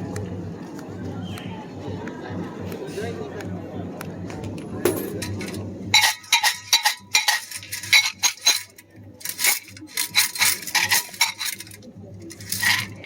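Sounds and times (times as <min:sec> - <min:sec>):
sticks rattling in a canister: 0:04.9 - 0:13.0.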